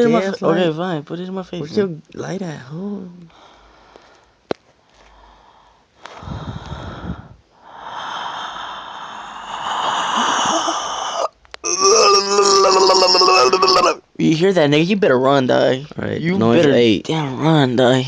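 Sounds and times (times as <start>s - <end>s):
person making raspy wheezing hiss: 6.2s - 14.0s.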